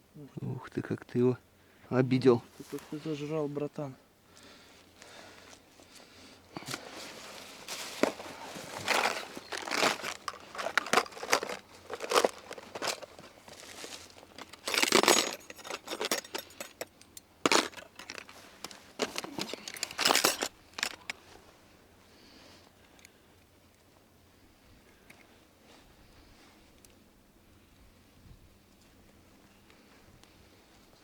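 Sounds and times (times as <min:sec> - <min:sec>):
rustling and crinkling handling: 0:02.2 - 0:03.6, 0:04.4 - 0:21.8.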